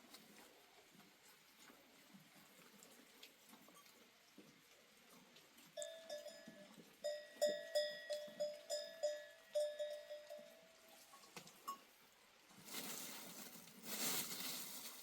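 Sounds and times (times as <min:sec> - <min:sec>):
livestock neck bells clanking: 0:05.8 - 0:11.9.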